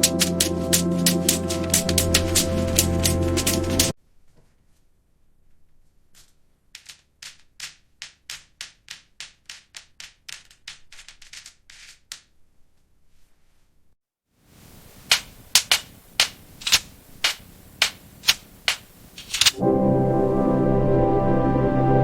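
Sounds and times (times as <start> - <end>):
match heads flaring with hisses: 14.6 - 19.6.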